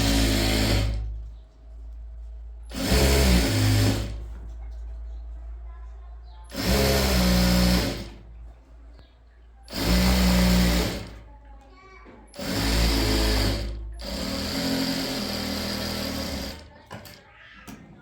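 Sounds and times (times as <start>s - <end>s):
electric sewing machine running: 0.0s - 1.1s, 2.7s - 4.3s, 6.5s - 8.2s, 9.7s - 11.2s, 12.4s - 17.2s.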